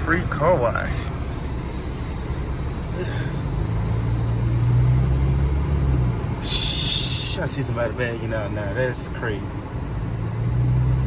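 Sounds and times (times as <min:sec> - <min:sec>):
car engine low drone: 0:00.0 - 0:11.0
short hiss: 0:06.4 - 0:07.4.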